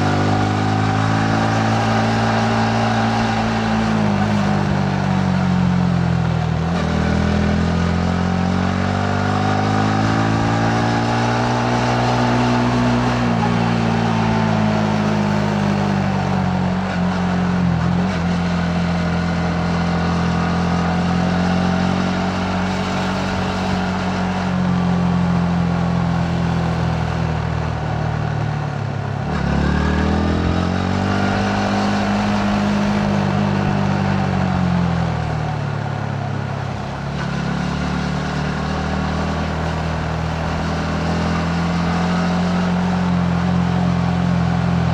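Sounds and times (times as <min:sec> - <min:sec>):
motorcycle engine revving: 0:00.0 - 0:28.4, 0:29.0 - 0:35.9, 0:36.5 - 0:44.9.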